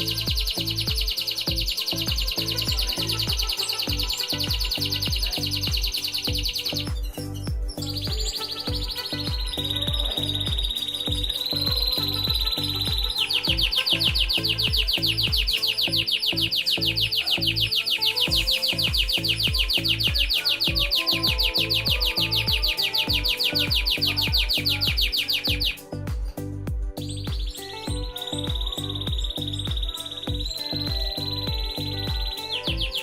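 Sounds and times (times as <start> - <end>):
canary trilling: 0.0 - 26.1
background music with steady beat: 0.0 - 33.0.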